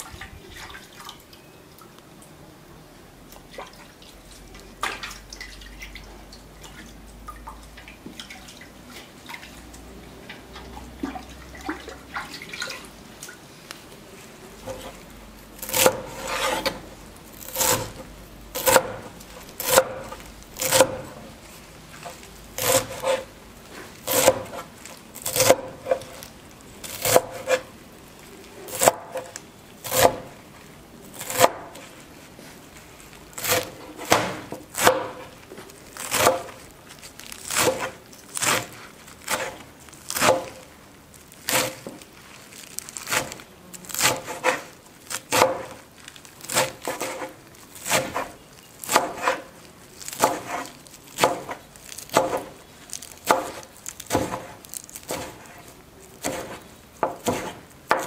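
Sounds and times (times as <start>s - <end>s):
knife on wooden cutting board: 15.6s - 16.8s, 17.4s - 21.2s, 22.0s - 26.2s, 26.8s - 27.7s, 31.2s - 32.0s, 33.4s - 35.4s, 37.5s - 40.6s, 44.0s - 45.8s, 46.5s - 52.5s, 53.2s - 55.6s, 56.2s - 58.0s.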